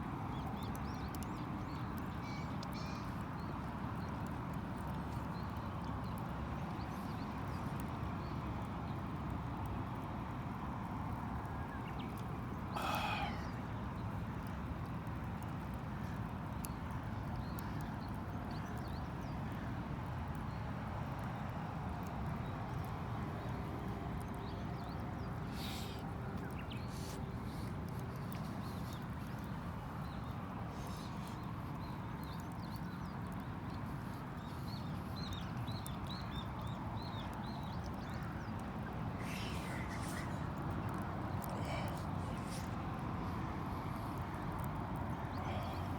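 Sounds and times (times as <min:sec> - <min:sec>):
campfire burning: 0:00.0 - 0:45.9.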